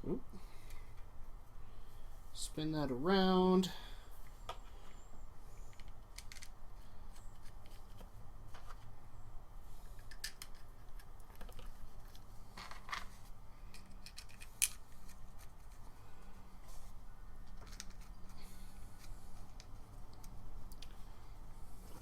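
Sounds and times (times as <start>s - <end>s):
low steady hum: 0.0s - 22.0s
small parts clicking and tapping: 5.7s - 8.1s, 10.0s - 15.5s, 17.4s - 18.4s.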